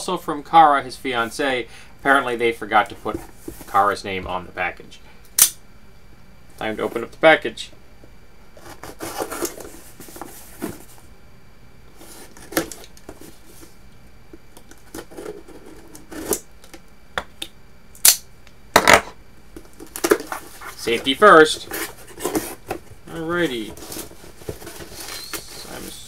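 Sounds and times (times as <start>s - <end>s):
cardboard package rustling: 8.6s - 11.1s, 19.6s - 26.0s.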